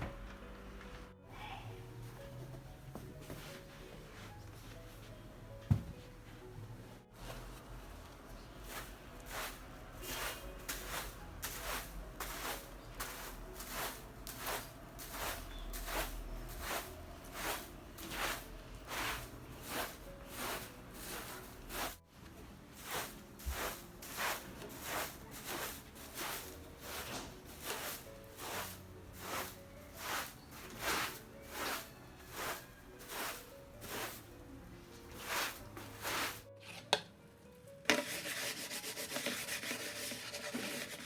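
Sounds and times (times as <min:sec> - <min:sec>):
short scuffing strokes: 0:08.6 - 0:22.0, 0:22.8 - 0:34.3, 0:35.1 - 0:36.8.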